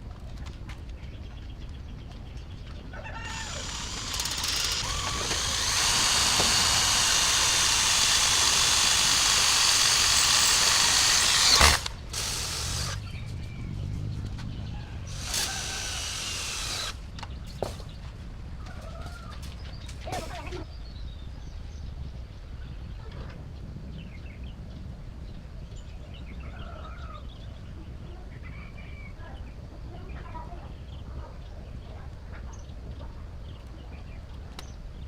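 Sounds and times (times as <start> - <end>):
handheld power tool running: 3.3 - 13.0, 15.1 - 17.0.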